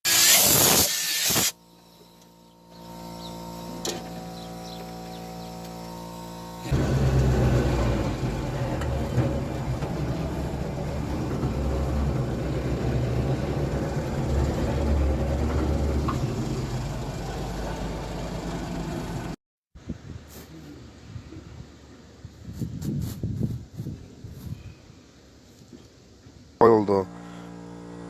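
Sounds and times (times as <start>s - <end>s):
engine idling: 2.7s - 19.4s.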